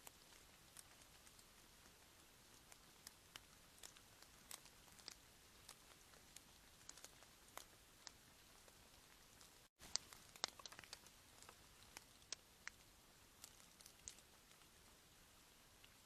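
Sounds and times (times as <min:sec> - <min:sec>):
small ticks and clicks: 0:00.0 - 0:15.1, 0:15.8 - 0:16.0
faint hiss: 0:00.0 - 0:16.0.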